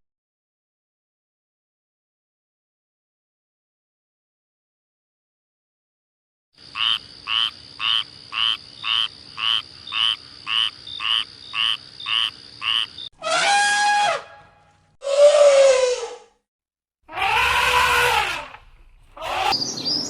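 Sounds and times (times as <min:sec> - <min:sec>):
animal croaking calls: 0:06.6 - 0:14.3, 0:17.1 - 0:19.6
drawn-out animal calls: 0:17.1 - 0:19.6.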